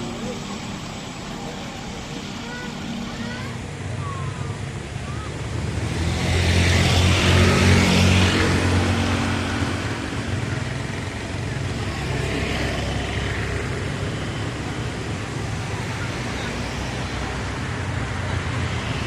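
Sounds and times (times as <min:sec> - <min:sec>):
wheel and rail hiss: 0:00.0 - 0:07.8
locomotive engine hum: 0:00.0 - 0:19.0.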